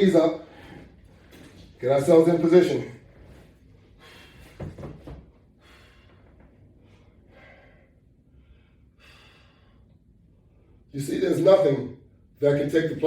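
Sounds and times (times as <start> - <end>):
man breathing hard: 4.0 - 4.8, 5.5 - 10.9.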